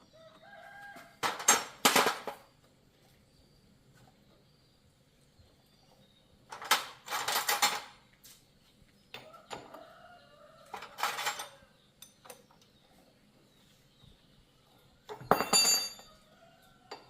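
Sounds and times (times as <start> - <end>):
metal tools clattering: 6.5 - 8.0, 10.7 - 12.5, 15.1 - 16.2.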